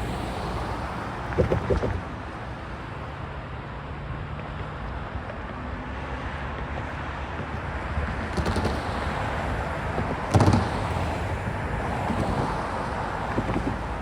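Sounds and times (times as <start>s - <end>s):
train wheels rumbling on rail: 6.6s - 14.0s.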